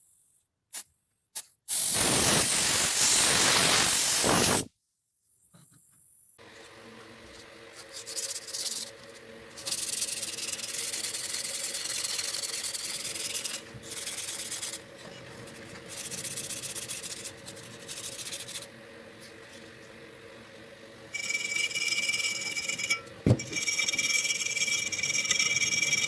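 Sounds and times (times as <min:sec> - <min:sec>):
sanding abrasive rubbing: 0:09.6 - 0:18.7.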